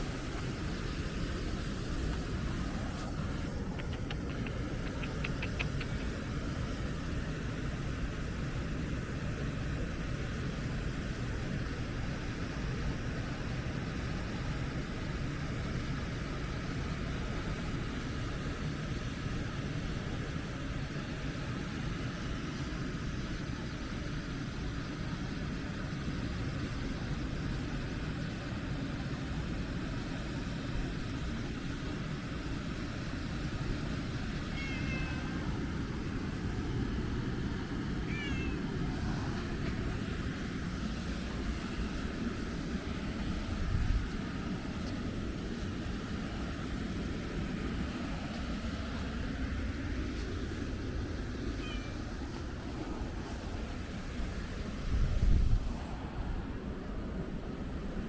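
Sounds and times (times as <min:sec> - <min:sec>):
cat meowing: 0:34.4 - 0:35.5, 0:38.0 - 0:38.9, 0:51.6 - 0:52.0.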